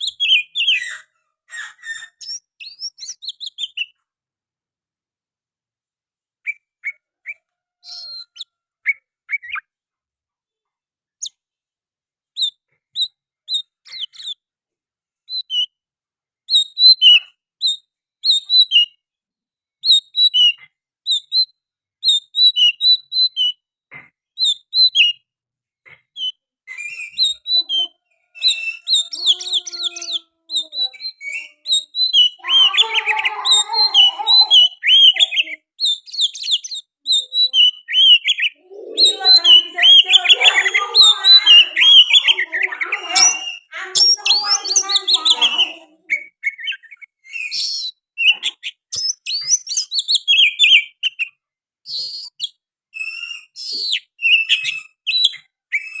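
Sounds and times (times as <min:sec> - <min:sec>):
songbird whistled chirps: 0:00.0 - 0:04.0, 0:06.5 - 0:09.7, 0:12.4 - 0:14.4, 0:16.5 - 0:19.0, 0:26.2 - 0:56.0.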